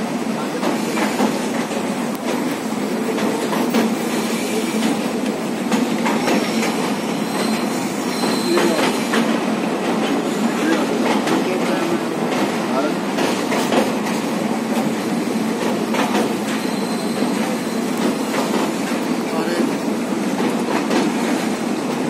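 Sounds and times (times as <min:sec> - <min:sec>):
train wheels rumbling on rails: 0:00.0 - 0:22.0
high-pitched wheel squeal: 0:07.1 - 0:09.1, 0:16.5 - 0:18.3.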